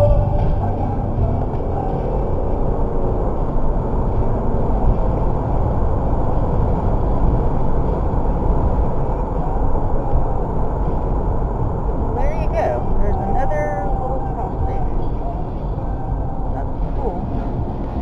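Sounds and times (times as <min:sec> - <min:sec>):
freight train rumbling past: 0:00.0 - 0:18.0.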